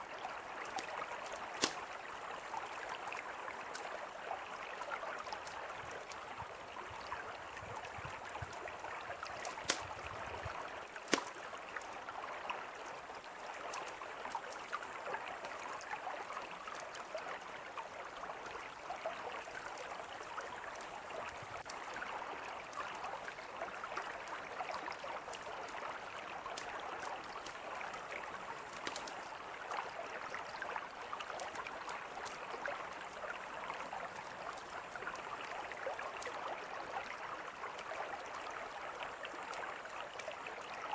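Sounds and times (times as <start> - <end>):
river flowing: 0.0 - 40.9
campfire crackling: 0.6 - 2.0, 9.2 - 10.3, 10.9 - 12.0, 26.6 - 29.3.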